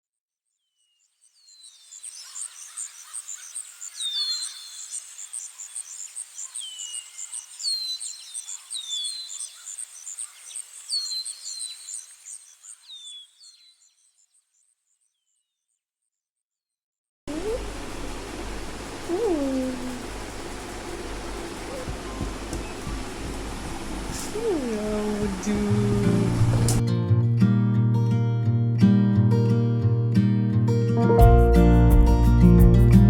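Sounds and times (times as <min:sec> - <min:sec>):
pulsing insect chirp: 0:01.2 - 0:14.4, 0:17.3 - 0:26.8.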